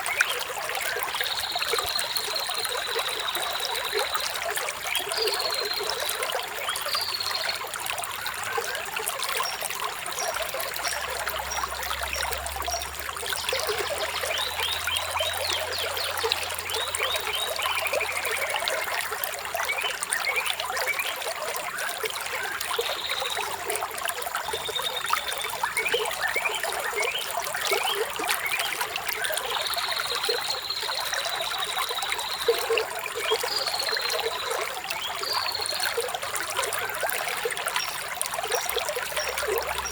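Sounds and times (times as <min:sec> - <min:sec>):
stream trickling and splashing: 0:00.0 - 0:39.9.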